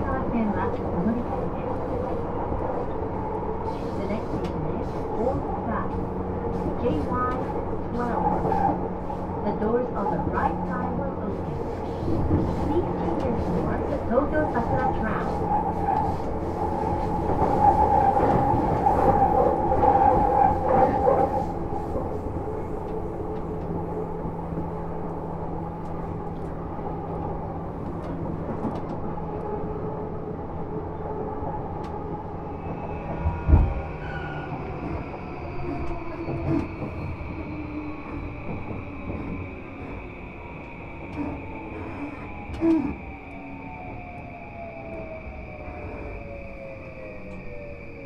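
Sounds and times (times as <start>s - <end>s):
train wheel and rail rumble: 0.0s - 48.0s.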